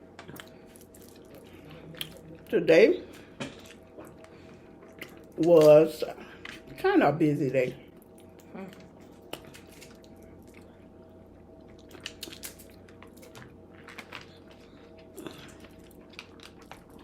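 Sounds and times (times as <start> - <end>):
faint steady hum: 0.0 - 17.0
chewing and biting: 0.2 - 2.5, 3.5 - 6.7, 7.9 - 17.0.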